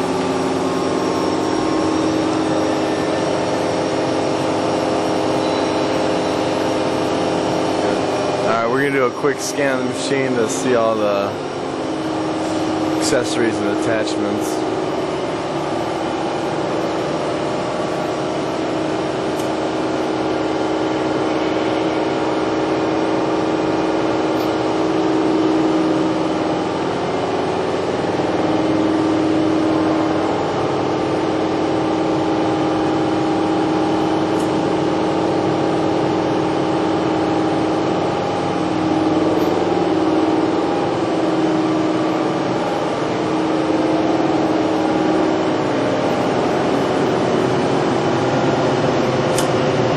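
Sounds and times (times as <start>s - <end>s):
held machine tones: 0.0s - 20.1s
machining center humming: 0.0s - 49.9s.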